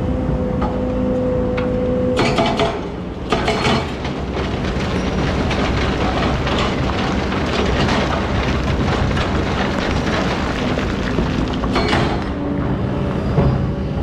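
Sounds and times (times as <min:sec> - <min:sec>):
excavator engine under load: 0:00.1 - 0:14.0
sand and stone rattling: 0:03.8 - 0:12.4.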